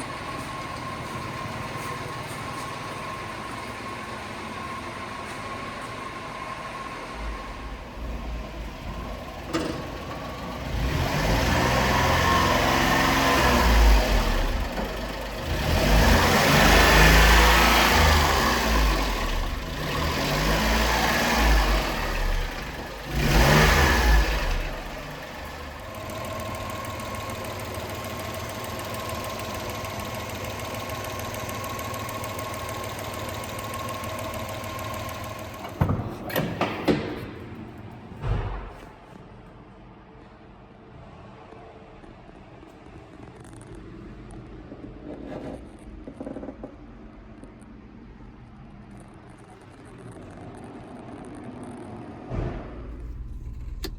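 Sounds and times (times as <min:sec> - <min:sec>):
truck engine revving and idling: 0:00.0 - 0:36.3, 0:52.8 - 0:53.9.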